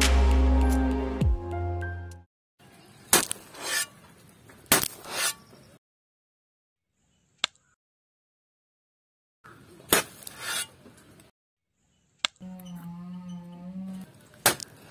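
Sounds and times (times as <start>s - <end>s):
soft scrape of scoop in powder: 3.5s - 4.0s, 5.0s - 5.6s, 10.2s - 10.8s
small click: 7.4s - 7.7s.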